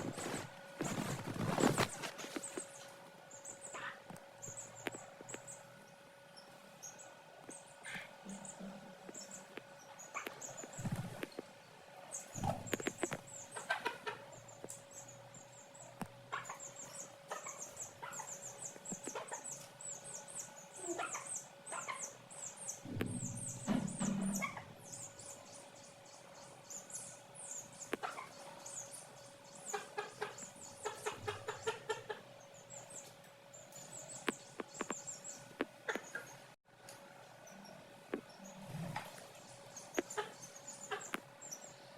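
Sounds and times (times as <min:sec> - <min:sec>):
chicks peeping: 0:00.0 - 0:02.8, 0:06.8 - 0:11.4, 0:12.1 - 0:25.9, 0:26.6 - 0:36.3
hen clucking: 0:12.4 - 0:14.4, 0:29.7 - 0:32.3, 0:39.9 - 0:41.2.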